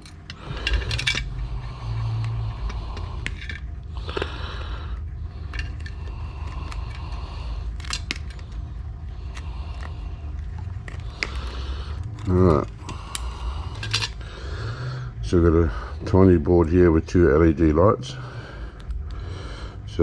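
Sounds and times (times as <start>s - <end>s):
hands scraping metal parts: 0.0s - 4.4s, 5.4s - 14.3s
low steady hum: 0.0s - 20.0s.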